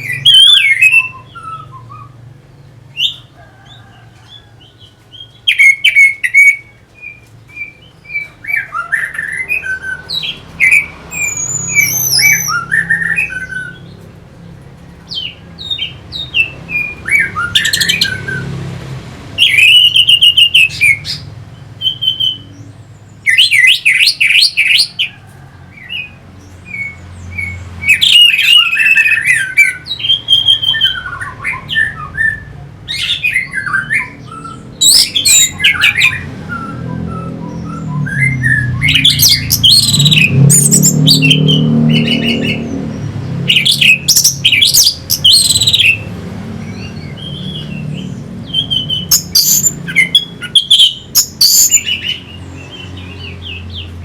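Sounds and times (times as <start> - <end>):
thrush singing: 26.7 - 54.0.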